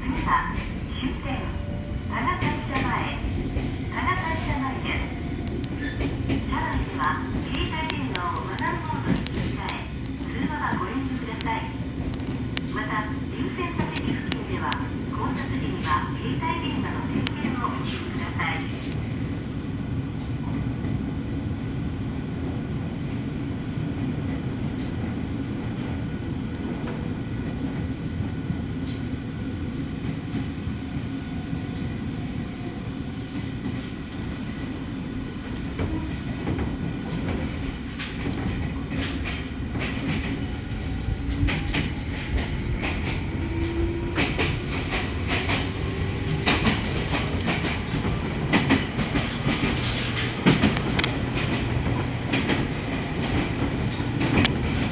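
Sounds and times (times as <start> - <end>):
electric train rumbling: 0.0 - 54.9
wheels clacking over rail joints: 35.6 - 54.9.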